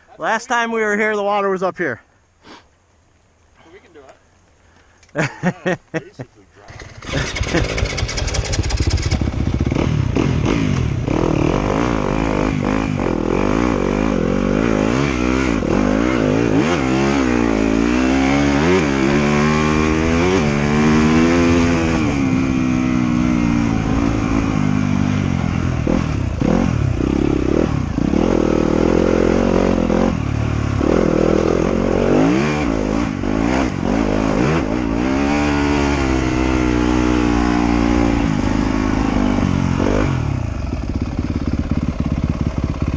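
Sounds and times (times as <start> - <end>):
motorcycle engine revving: 6.7 - 42.9.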